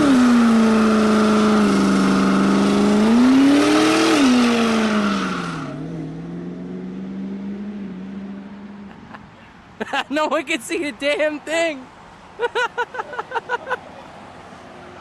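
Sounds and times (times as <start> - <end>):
truck engine revving: 0.0 - 9.2.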